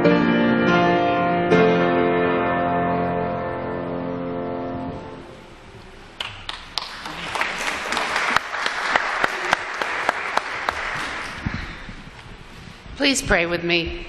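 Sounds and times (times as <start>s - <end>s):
congregation applauding: 6.2s - 11.9s.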